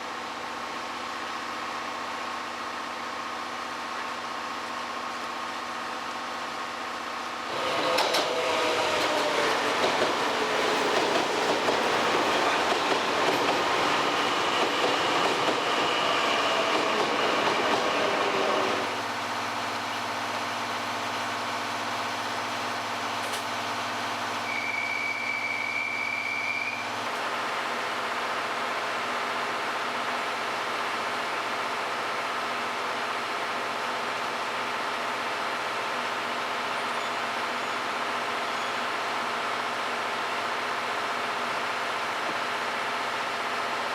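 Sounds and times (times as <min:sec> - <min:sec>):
train running on rails: 0:00.0 - 0:43.9
train wheel squeal: 0:13.3 - 0:18.8, 0:24.4 - 0:26.9, 0:36.7 - 0:39.0.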